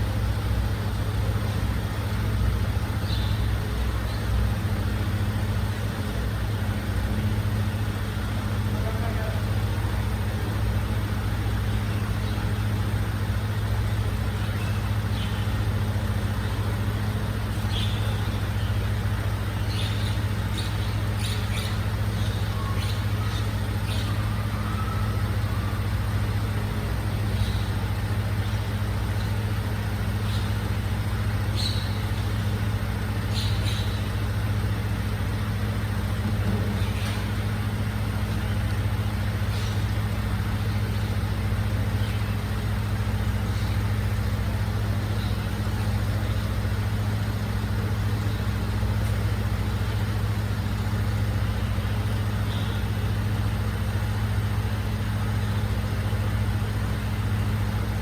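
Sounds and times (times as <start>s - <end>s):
truck diesel engine idling: 0.0s - 58.0s.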